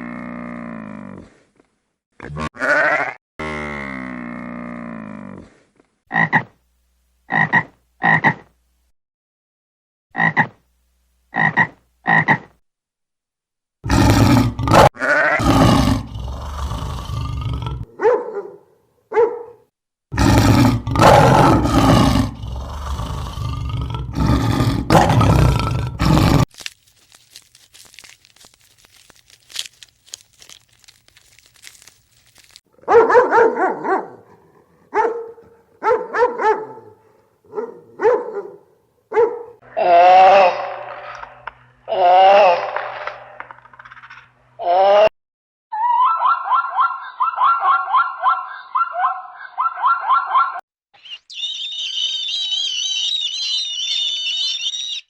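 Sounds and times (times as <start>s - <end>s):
rough noisy animal calls: 51.0s - 55.0s.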